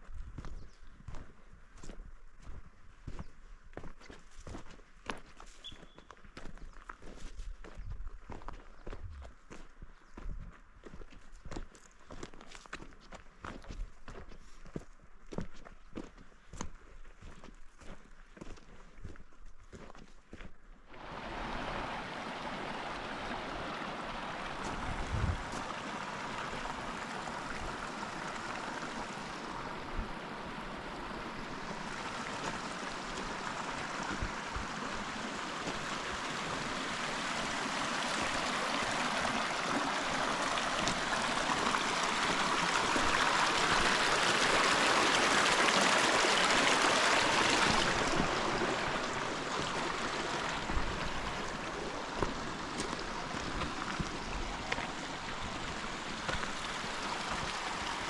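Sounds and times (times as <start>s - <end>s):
creek water rushing: 20.9s - 58.0s.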